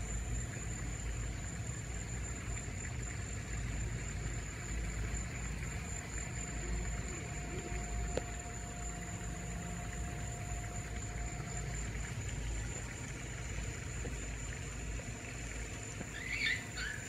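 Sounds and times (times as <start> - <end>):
low background hum: 0.0 - 17.0
thin high whine: 4.4 - 17.0
short wavering bird call: 16.0 - 17.0.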